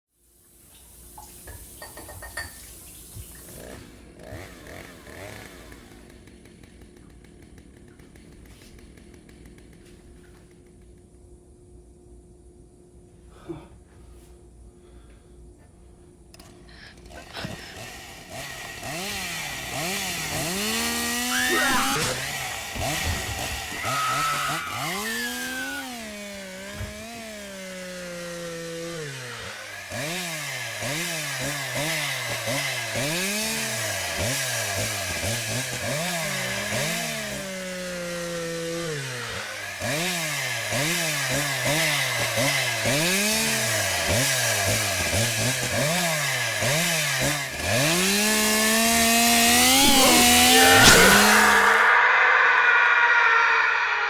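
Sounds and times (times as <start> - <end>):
chainsaw engine revving: 3.3 - 10.8, 16.4 - 52.0.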